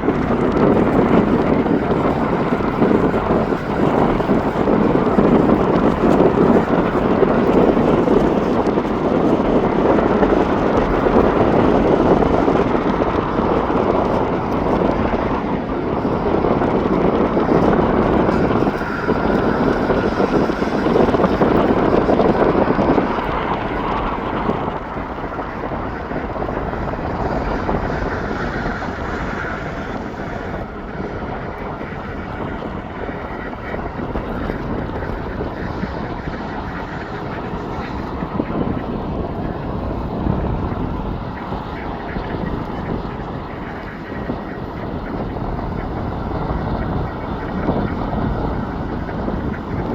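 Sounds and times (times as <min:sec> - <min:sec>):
jet airliner engines roaring: 0:00.0 - 0:49.9.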